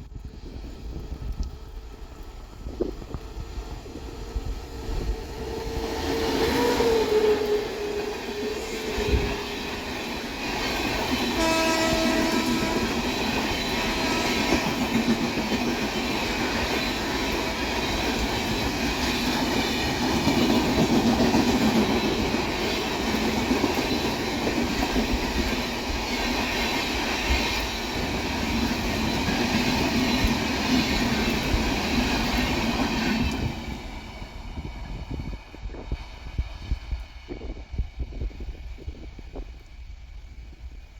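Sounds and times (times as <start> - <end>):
train wheels clickety-clack: 0.0 - 40.9
train horn blast: 11.3 - 13.2.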